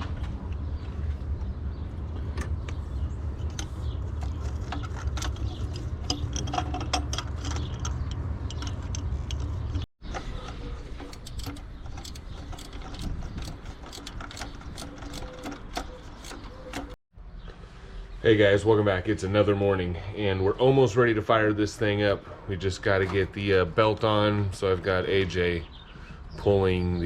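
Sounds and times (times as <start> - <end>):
tools clinking: 11.0 - 17.0
ratchet wrench clicking: 11.1 - 17.0.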